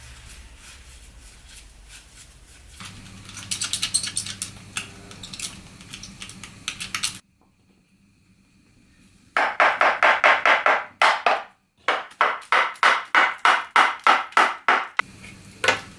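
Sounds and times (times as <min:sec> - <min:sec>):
metallic clicking of hand tools: 0:02.8 - 0:07.2.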